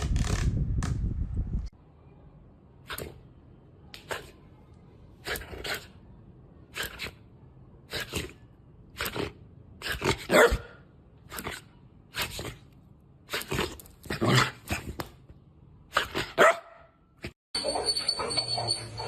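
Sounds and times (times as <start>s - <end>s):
dog barking and huffing: 9.0s - 12.7s, 15.9s - 19.0s.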